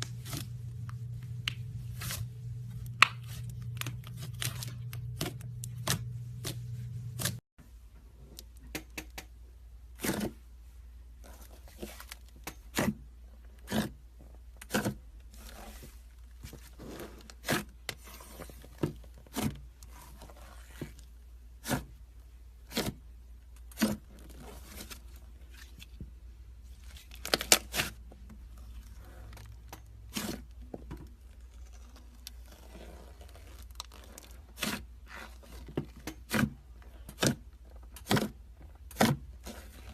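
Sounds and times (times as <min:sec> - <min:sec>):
faint low hum: 0:00.0 - 0:08.6.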